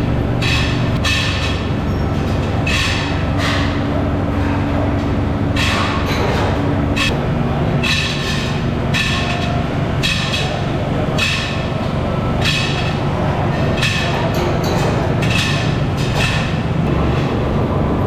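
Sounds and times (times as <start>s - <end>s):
workshop machinery hum: 0.0s - 18.0s.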